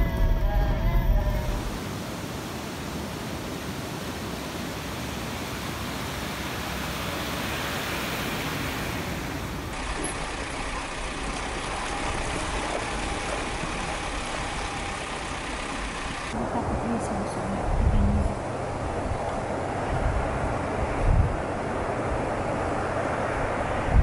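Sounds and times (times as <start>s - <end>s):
van engine and tyre noise: 0.0s - 24.0s
vehicle road noise on rough track: 0.0s - 24.0s
rushing water: 1.6s - 17.2s.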